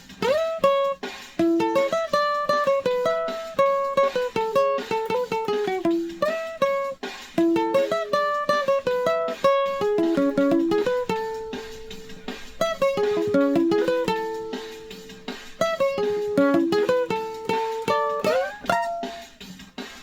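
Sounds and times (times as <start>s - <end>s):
plucked string instrument melody: 0.0s - 20.0s.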